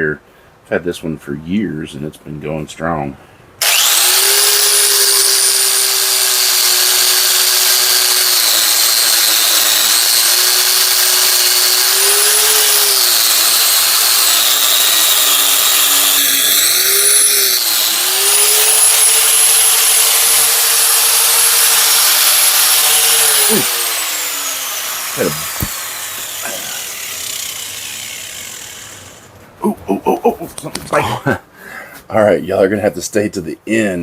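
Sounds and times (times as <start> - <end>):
angle grinder grinding steel: 3.6 - 29.4.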